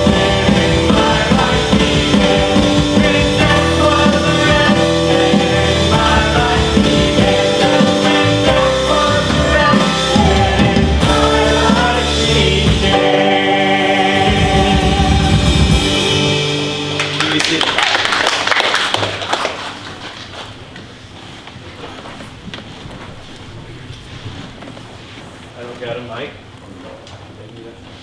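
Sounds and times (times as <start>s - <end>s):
person singing: 0.0s - 17.0s
drums: 0.0s - 18.2s
rock worship band playing: 0.0s - 19.8s.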